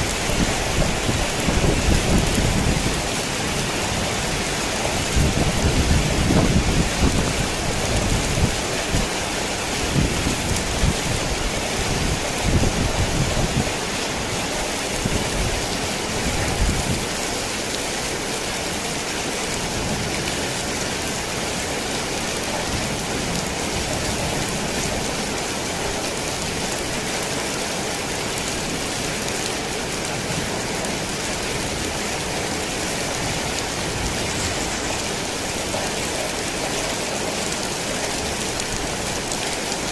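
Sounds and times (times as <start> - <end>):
thunder rumbling: 0.0 - 9.0
heavy rain on a tin roof: 0.0 - 39.9.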